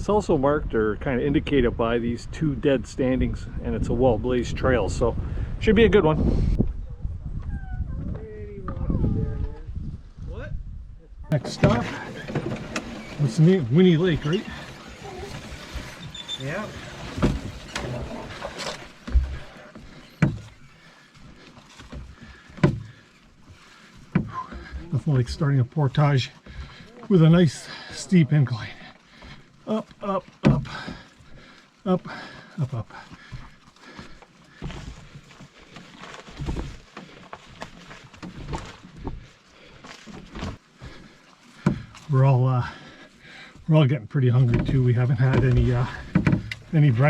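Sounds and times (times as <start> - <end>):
faint rustling of gear: 11.4 - 30.0, 30.7 - 43.7
footfalls on trail: 11.4 - 43.7
hollow knocks on canoe hull: 21.9 - 23.0, 41.6 - 42.0, 44.4 - 46.7
person breathing hard: 26.4 - 28.0, 30.6 - 36.0, 42.7 - 43.6.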